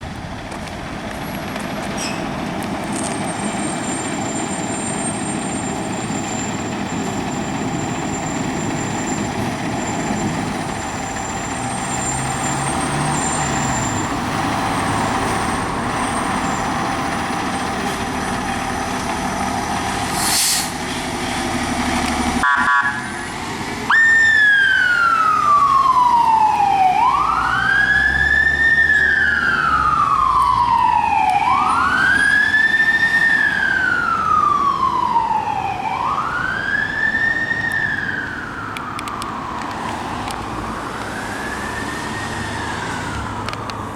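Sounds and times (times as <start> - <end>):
fire engine running: 0.0 - 43.9
rapid siren pulsing: 22.4 - 23.2, 23.9 - 43.9
siren wailing: 22.4 - 43.9.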